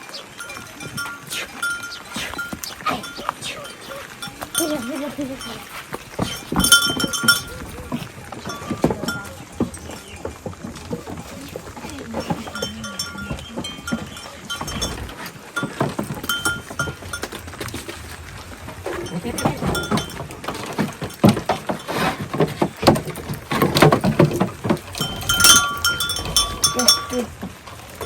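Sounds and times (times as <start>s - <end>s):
goats calling: 0.0s - 28.0s.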